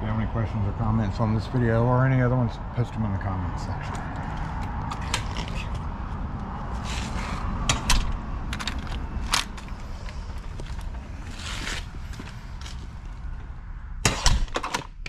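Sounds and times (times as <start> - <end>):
steady low rumble: 0.0 - 14.1
metal scraping: 6.7 - 12.8.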